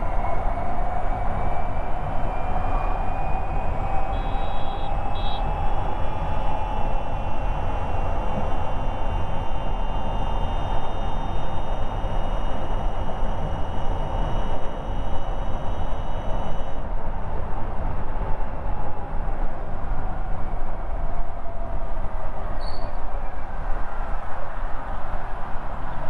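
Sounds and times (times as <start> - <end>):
wind rumble on microphone: 0.0 - 26.0
electric motor whine: 8.0 - 16.8.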